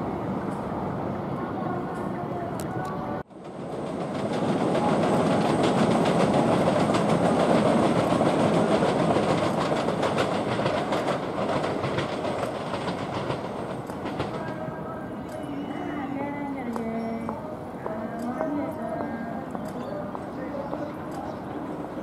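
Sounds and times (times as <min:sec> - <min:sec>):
train wheels clicking over rail joints: 0:03.4 - 0:14.7.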